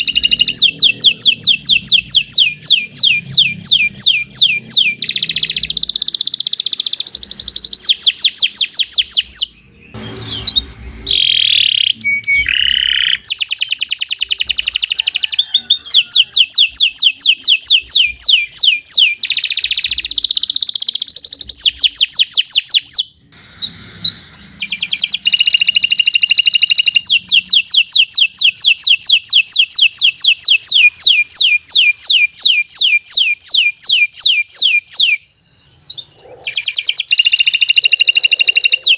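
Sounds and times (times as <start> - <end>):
canary singing rapid trills: 0.0 - 38.9.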